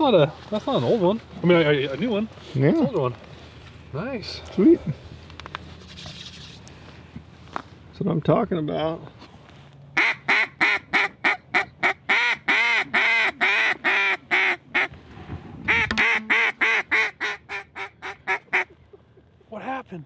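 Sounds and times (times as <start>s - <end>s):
duck call quacks: 10.0s - 14.9s, 15.7s - 18.8s.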